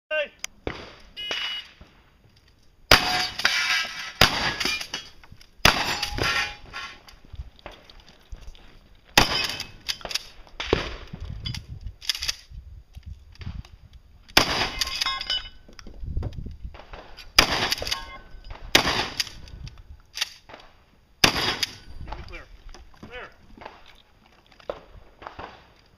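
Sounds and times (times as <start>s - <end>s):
rifle gunshots: 2.9s - 3.6s, 4.2s - 4.9s, 5.6s - 6.6s, 9.2s - 11.1s, 14.4s - 15.0s, 16.9s - 19.4s, 21.2s - 22.4s
metallic rings from steel targets: 2.9s - 7.0s, 14.7s - 15.6s, 17.8s - 18.5s.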